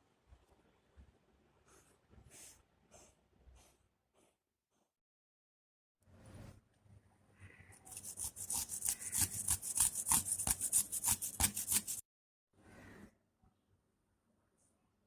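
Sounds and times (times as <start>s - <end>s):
rapid scraping strokes: 7.9s - 12.0s.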